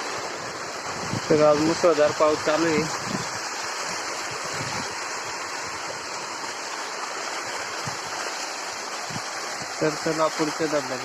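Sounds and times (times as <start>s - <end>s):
heavy rain: 0.0s - 11.0s
waterfall rushing: 0.0s - 11.0s.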